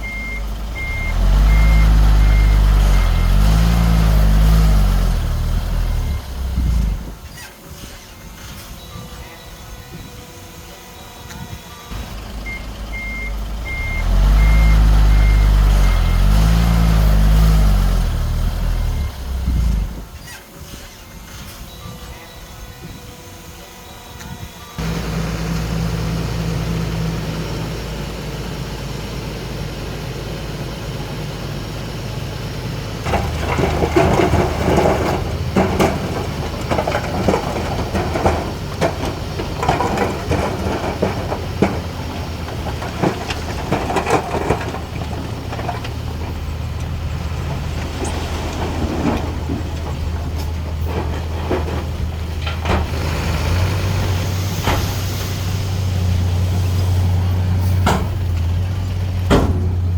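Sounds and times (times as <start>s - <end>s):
bulldozer diesel engine: 0.0s - 59.9s
metal clanks: 33.0s - 46.9s, 57.6s - 59.9s
scraping: 33.1s - 53.0s.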